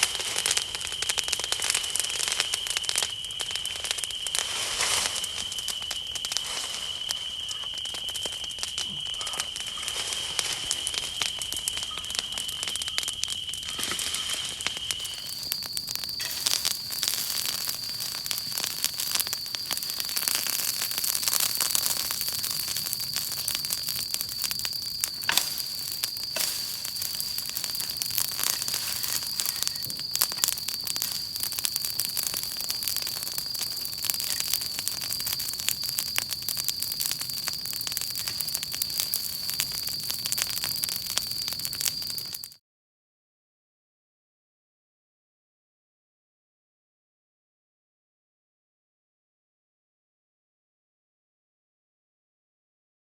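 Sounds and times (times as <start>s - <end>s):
steady high whistle: 5.2s - 9.5s, 14.7s - 42.5s
wood fire crackling: 14.0s - 42.6s.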